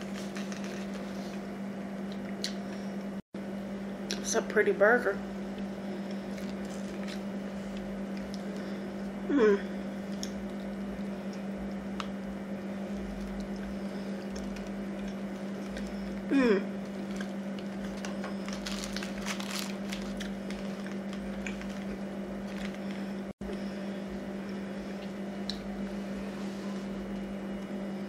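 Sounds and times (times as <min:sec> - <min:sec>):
low electrical hum: 0:00.0 - 0:28.0
person humming: 0:09.2 - 0:09.8, 0:16.2 - 0:16.8
chewing and wet mouth sounds: 0:12.9 - 0:23.1.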